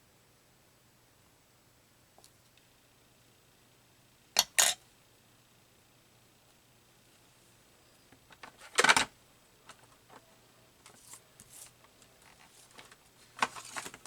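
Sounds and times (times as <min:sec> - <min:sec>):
paper rustling: 0:10.8 - 0:14.0.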